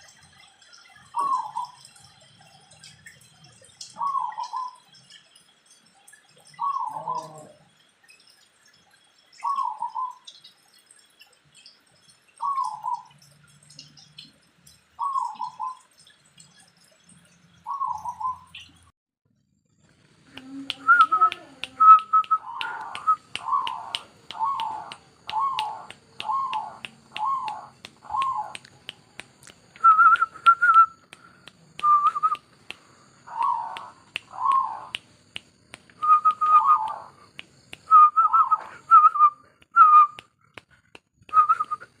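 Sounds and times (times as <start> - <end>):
dove cooing: 6.6 - 7.6, 20.5 - 28.6, 33.3 - 34.9, 36.1 - 37.2.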